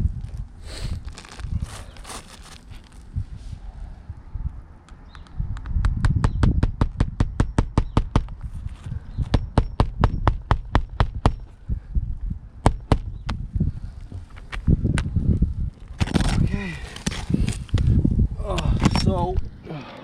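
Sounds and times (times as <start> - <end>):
wind on microphone: 0.0 - 19.7
sharp clicking taps: 4.9 - 8.4.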